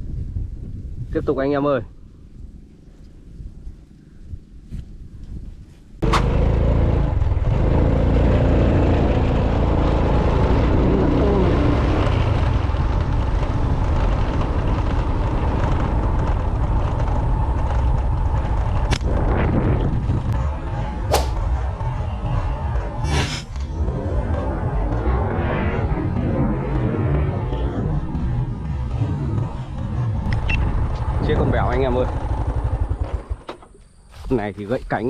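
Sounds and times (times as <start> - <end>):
loud steady rumbling: 6.0 - 33.5
sharp snap: 21.1 - 21.4.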